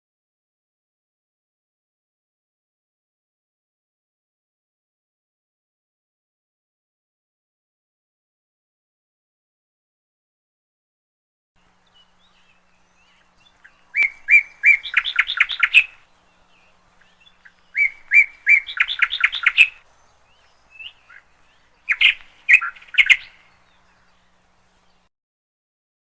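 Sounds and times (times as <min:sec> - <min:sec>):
songbird singing: 0:11.6 - 0:25.1.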